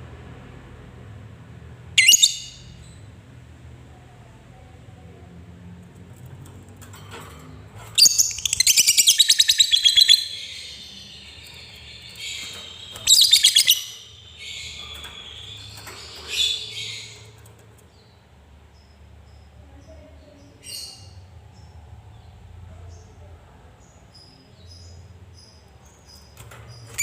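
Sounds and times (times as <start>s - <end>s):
lovebird shrill chattering trill: 2.0s - 2.7s, 8.0s - 17.2s.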